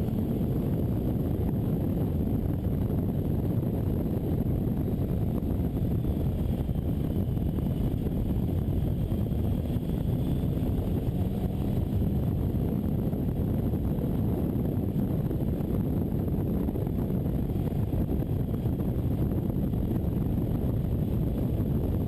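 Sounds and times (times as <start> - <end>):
motorcycle engine running: 0.0 - 22.0
wind noise on microphone: 0.0 - 22.0.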